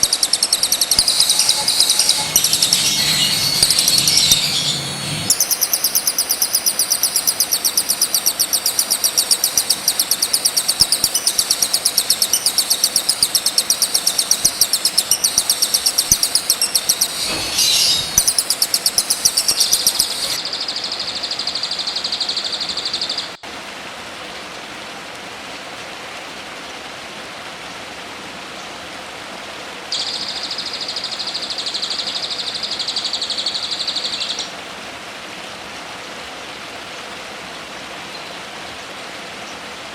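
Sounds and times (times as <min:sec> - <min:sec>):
steady hiss: 0:00.0 - 0:20.6
songbird song: 0:00.0 - 0:23.4, 0:30.0 - 0:34.6, 0:38.0 - 0:38.5
high buzzing trill: 0:00.4 - 0:20.4.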